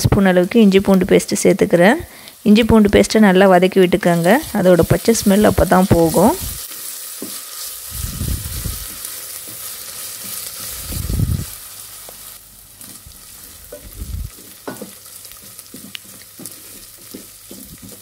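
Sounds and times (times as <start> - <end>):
onions sizzling in hot oil: 0.2 - 18.0
wooden spatula scraping pot: 13.7 - 18.0.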